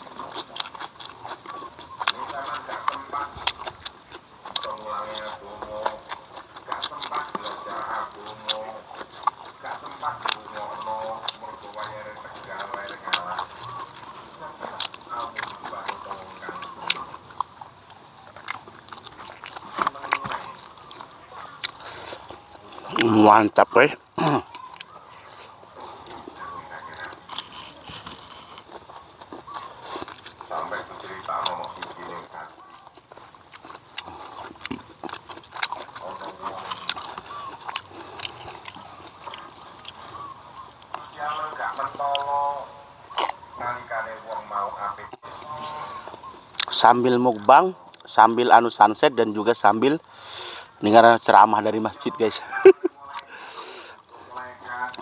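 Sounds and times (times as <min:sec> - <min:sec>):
wet lip-smacks and mouth clicks: 0:00.0 - 0:42.3, 0:43.0 - 0:43.6, 0:44.4 - 0:48.2
man chewing food: 0:00.0 - 0:55.0.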